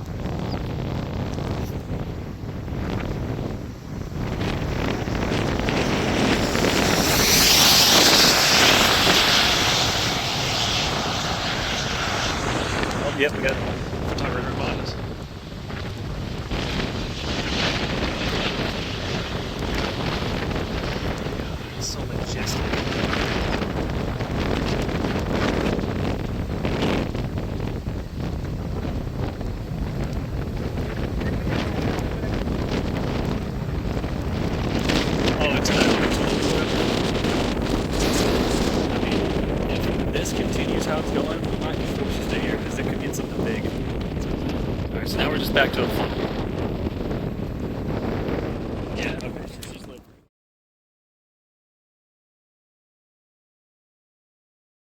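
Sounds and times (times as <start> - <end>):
wind buffeting microphone: 0.0 - 50.3
passing vehicle tyre noise: 4.2 - 14.1.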